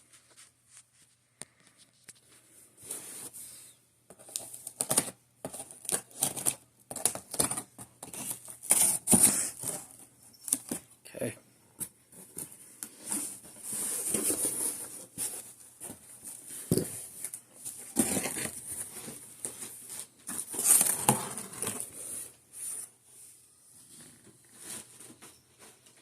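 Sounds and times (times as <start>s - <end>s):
cardboard and packing rustling: 4.1s - 10.9s, 11.8s - 23.0s, 23.8s - 26.0s.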